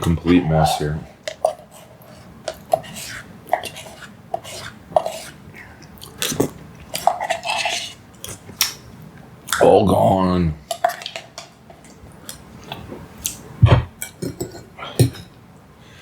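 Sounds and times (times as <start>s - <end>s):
chewing: 0.0s - 8.8s, 10.7s - 13.4s
cutlery clinking against dish: 14.0s - 15.3s.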